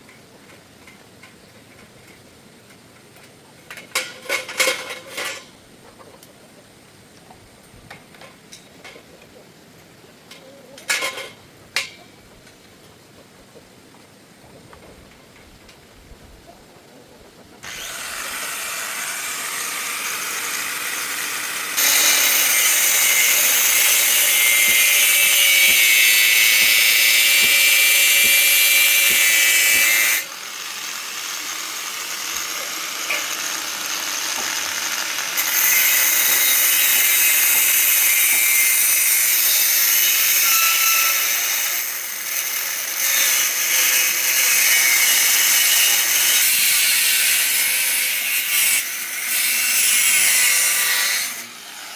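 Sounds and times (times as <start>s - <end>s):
power tool grinding steel: 17.6s - 51.9s.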